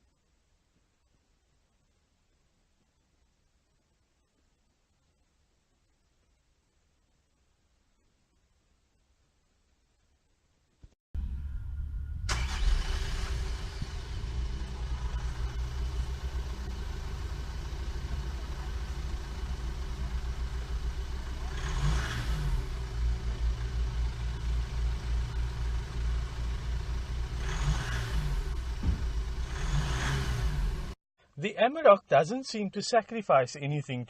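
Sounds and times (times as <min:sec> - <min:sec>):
diesel engine starting and idling: 0:11.2 - 0:31.0
engine revving: 0:11.2 - 0:31.0.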